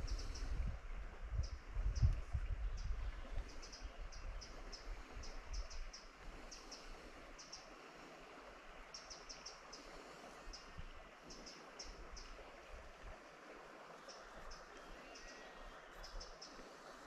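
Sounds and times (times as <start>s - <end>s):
low wind rumble on microphone: 0.0s - 7.3s.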